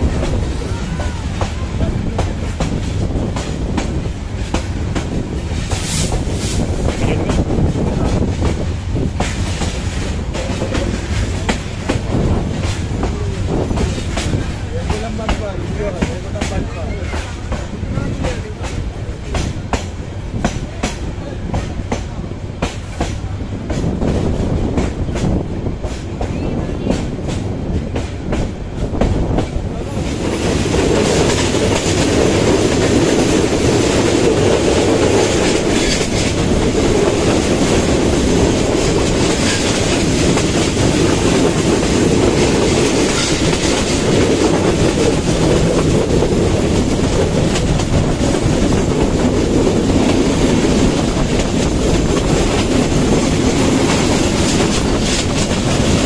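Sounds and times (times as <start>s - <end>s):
train wheels clicking over rail joints: 0.0s - 56.0s.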